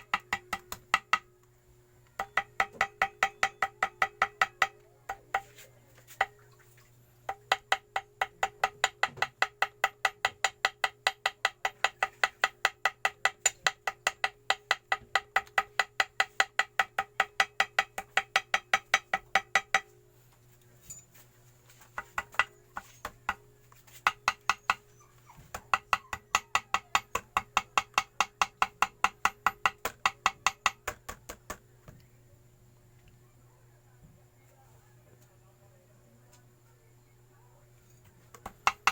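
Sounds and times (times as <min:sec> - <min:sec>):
small hammer tapping: 0:00.0 - 0:01.3, 0:02.1 - 0:05.6, 0:07.3 - 0:19.9, 0:22.0 - 0:24.8, 0:25.5 - 0:32.1, 0:38.3 - 0:38.9.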